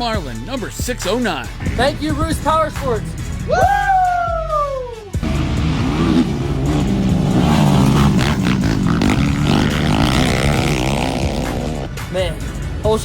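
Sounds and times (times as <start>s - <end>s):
racing atv engines revving: 1.0s - 3.5s, 5.1s - 13.0s.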